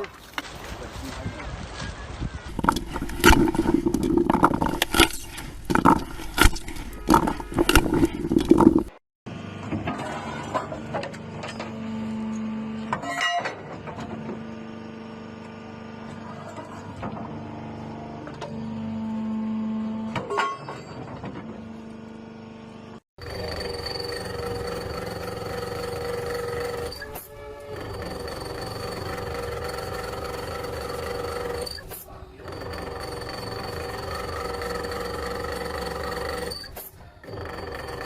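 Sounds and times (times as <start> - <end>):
machine droning and humming: 2.5 - 38.0
machine whining: 21.0 - 38.0.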